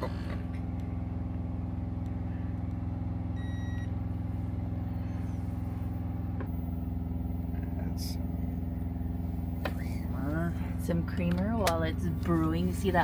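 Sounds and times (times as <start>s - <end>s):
diesel truck engine idling: 0.0s - 13.0s
short electronic beep: 3.4s - 3.9s.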